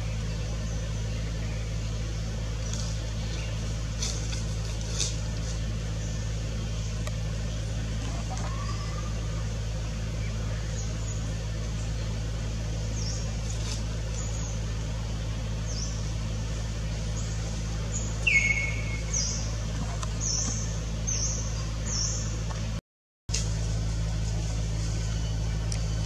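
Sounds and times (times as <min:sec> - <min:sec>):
small birds chirping: 0:00.0 - 0:22.8, 0:24.0 - 0:26.0
low mechanical hum: 0:00.0 - 0:26.0
lower falling bird call: 0:17.0 - 0:22.3.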